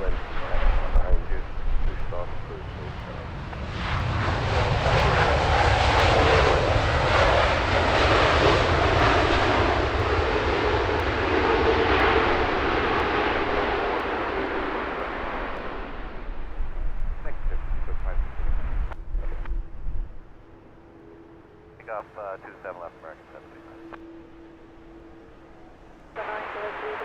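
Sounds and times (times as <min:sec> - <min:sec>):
jet airliner passing: 0:00.0 - 0:27.0.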